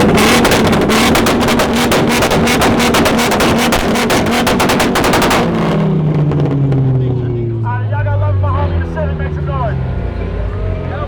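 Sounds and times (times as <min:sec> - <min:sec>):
exhaust pops: 0:00.0 - 0:07.7
car engines revving: 0:00.0 - 0:11.0.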